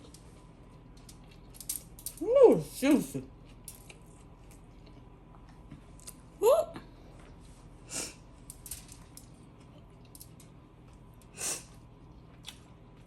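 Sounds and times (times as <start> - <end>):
person chewing: 3.3 - 6.3, 11.0 - 13.0.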